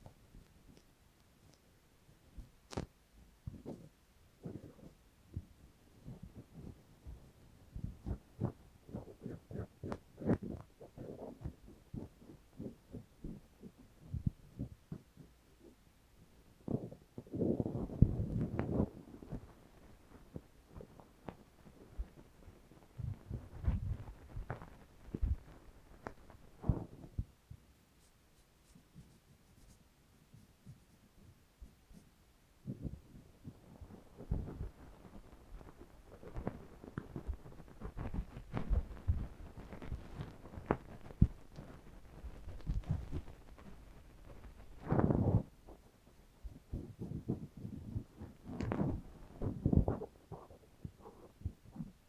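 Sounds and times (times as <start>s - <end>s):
ear cleaning rubbing and scratching: 7.8s - 15.3s, 22.9s - 32.1s, 32.7s - 45.6s.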